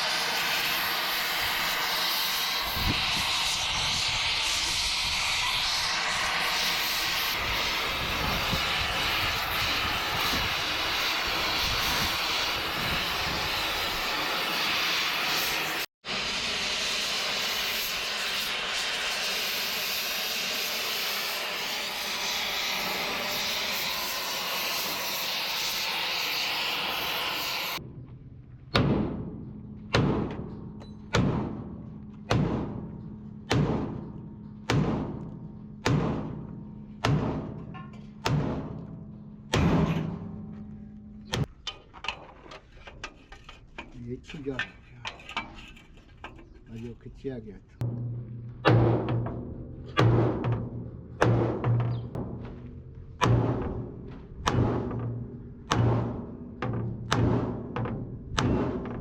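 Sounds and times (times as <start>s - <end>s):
loud rushing hiss: 0.0s - 27.8s
background music with drum hits: 28.7s - 40.6s, 47.8s - 59.0s.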